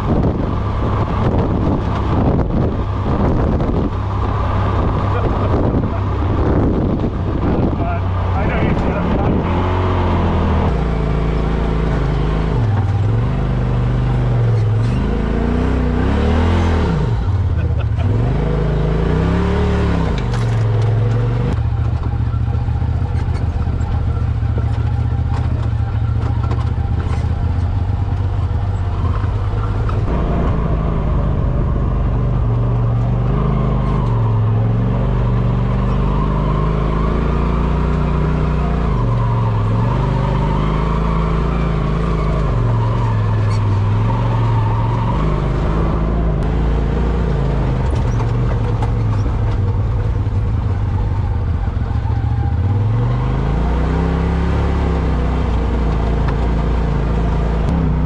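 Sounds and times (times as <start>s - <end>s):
vehicle engine revving: 0.0s - 58.0s.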